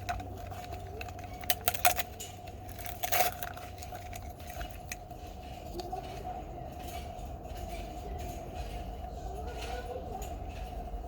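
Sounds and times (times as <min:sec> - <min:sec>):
packaging crinkling: 0:00.0 - 0:05.0
plastic toys clicking: 0:00.0 - 0:05.0.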